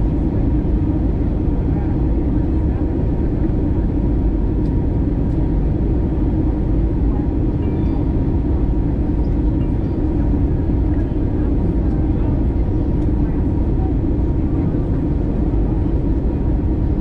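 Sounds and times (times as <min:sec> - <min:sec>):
airplane engines rumbling in cabin: 0:00.0 - 0:17.0.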